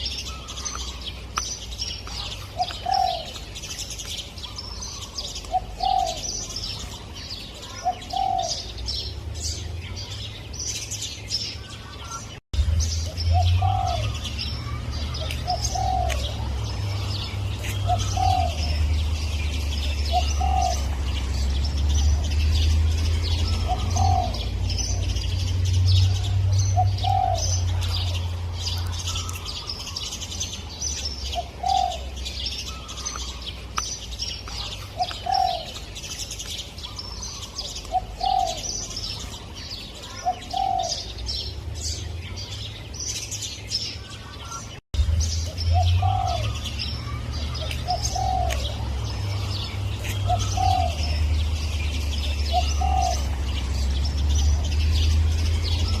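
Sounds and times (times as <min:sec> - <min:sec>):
small birds twittering: 0:00.0 - 0:56.0
dove cooing: 0:02.1 - 0:03.4, 0:04.5 - 0:06.5, 0:07.6 - 0:08.8, 0:13.3 - 0:21.4, 0:23.4 - 0:25.1, 0:26.1 - 0:29.6, 0:31.4 - 0:33.0, 0:34.6 - 0:35.9, 0:37.0 - 0:38.9, 0:45.7 - 0:51.4, 0:52.2 - 0:53.5.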